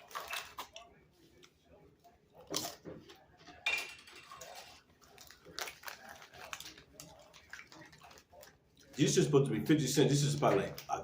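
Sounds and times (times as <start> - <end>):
person chewing crunchy chips: 4.3 - 9.2.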